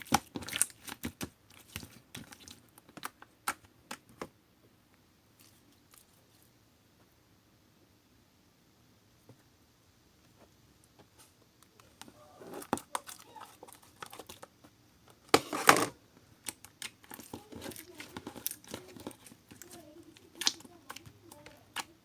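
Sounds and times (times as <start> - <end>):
slime squelching: 0.0 - 4.2, 5.3 - 6.6, 11.6 - 15.6, 16.4 - 22.0
slime being kneaded by hand: 0.0 - 4.4, 16.4 - 22.0.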